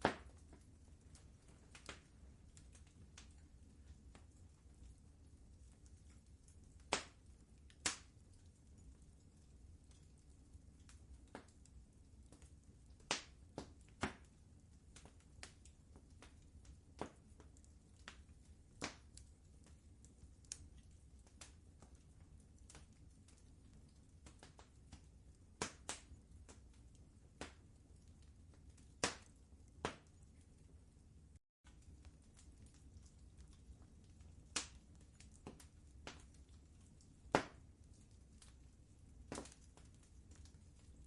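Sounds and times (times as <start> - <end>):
faint low rumble: 0.0 - 41.0
wood fire crackling: 0.0 - 41.0.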